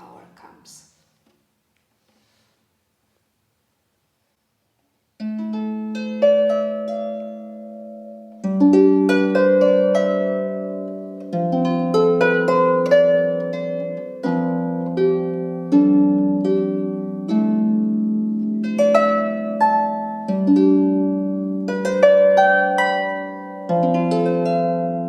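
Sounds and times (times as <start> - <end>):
harp melody: 5.2 - 25.0.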